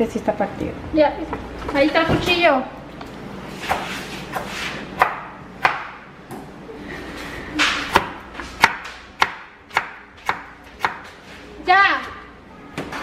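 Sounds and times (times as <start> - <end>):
knife scraping swish: 3.5 - 4.9
knife chopping on cutting board: 3.6 - 6.0, 7.6 - 11.1.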